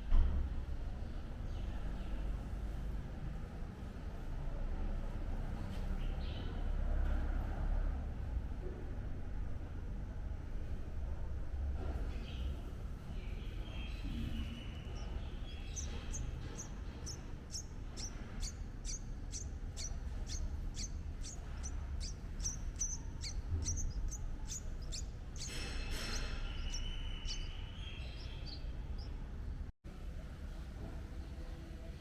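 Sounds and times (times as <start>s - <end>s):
low background rumble: 7.9s - 31.9s
small bird chirping: 12.1s - 29.6s.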